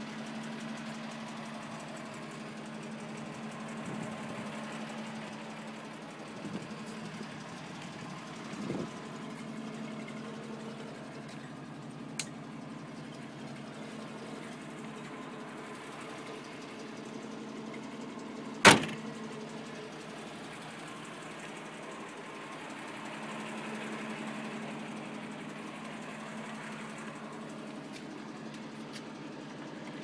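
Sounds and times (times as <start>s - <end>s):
car engine idling: 0.0s - 30.0s
sharp loud bang: 18.7s - 19.1s.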